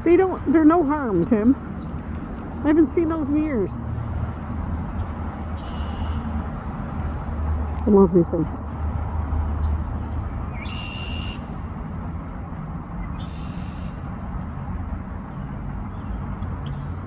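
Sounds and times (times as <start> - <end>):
blackbird singing: 5.6 - 6.3, 9.7 - 11.5, 13.1 - 14.0.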